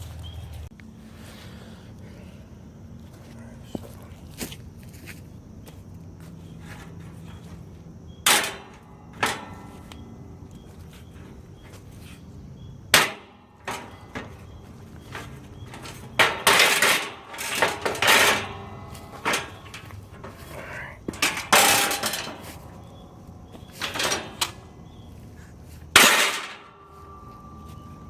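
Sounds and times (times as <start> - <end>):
metal rattling clanks: 6.5 - 28.0.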